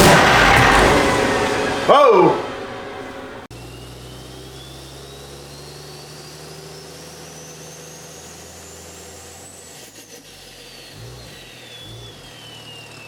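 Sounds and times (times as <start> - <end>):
high-pitched whine: 0.0 - 3.8
diesel engine running: 0.0 - 9.0.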